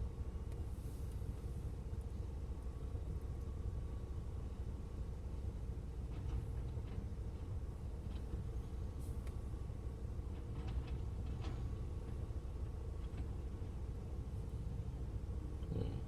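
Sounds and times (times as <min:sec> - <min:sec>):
engine rumbling: 0:00.0 - 0:16.0
faint hum: 0:11.2 - 0:16.0.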